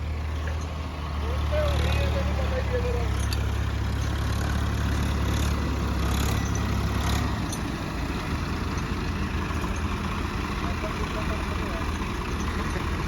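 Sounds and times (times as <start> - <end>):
tractor engine straining: 0.0 - 13.0.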